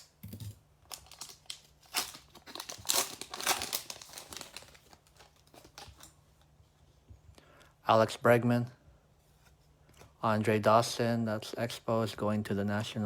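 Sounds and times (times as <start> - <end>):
wrapper being torn and crinkled: 0.9 - 6.2.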